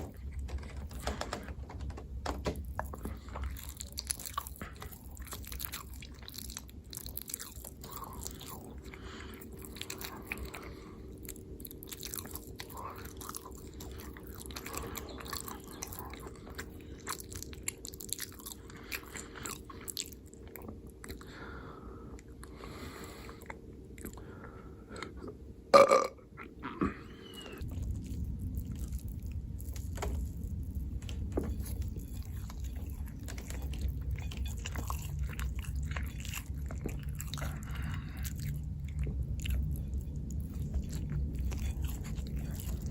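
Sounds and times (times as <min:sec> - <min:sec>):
low hum: 0:00.0 - 0:42.9
person chewing: 0:02.7 - 0:42.9
person burping: 0:25.7 - 0:27.1.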